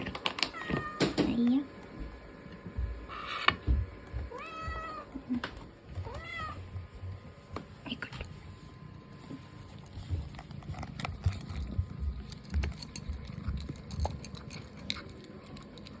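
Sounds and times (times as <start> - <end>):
cat crunching dry food: 9.7 - 16.0.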